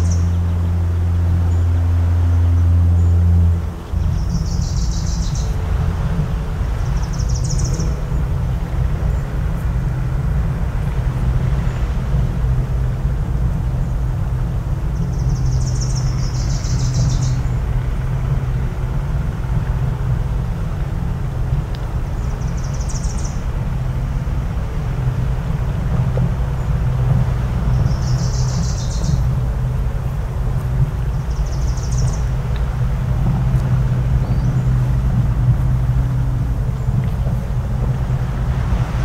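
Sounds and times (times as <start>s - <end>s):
low coastal rumble: 0.0s - 39.0s
low foghorn blast: 0.2s - 15.3s
high bird calls: 3.9s - 5.6s, 6.7s - 8.0s, 15.0s - 17.6s, 22.2s - 23.4s, 27.7s - 29.3s, 31.1s - 32.4s.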